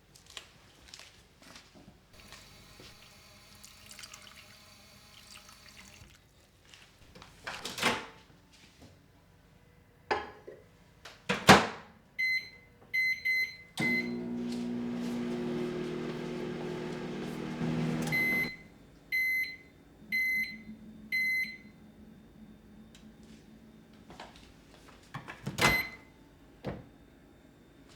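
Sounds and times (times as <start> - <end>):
microwave oven humming: 2.2 - 6.0, 12.2 - 24.8, 25.4 - 27.9
microwave beeps: 12.2 - 21.8, 25.6 - 26.1
microwave door shutting: 13.8 - 18.5, 25.4 - 26.0.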